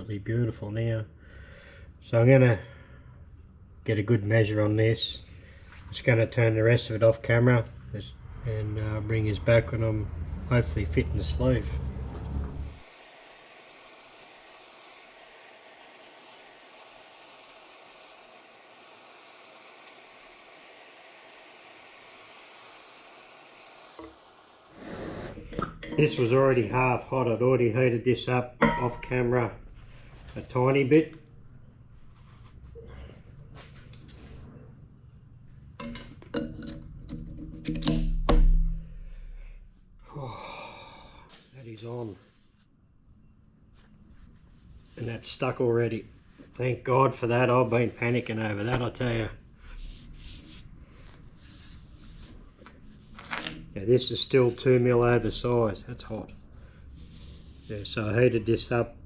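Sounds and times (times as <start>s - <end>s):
steady hiss: 12.7s - 25.4s
metal-on-metal clinks and knocks: 35.8s - 38.2s, 41.3s - 42.6s.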